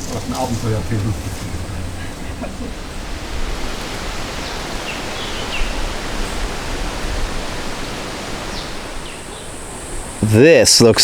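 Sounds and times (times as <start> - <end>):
river water rushing: 0.0 - 10.3.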